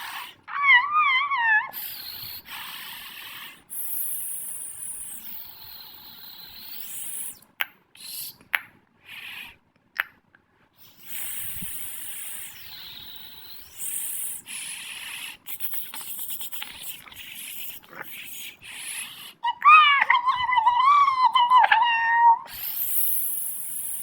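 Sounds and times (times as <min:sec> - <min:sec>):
high hissing noise: 0:10.8 - 0:19.4, 0:22.5 - 0:24.0.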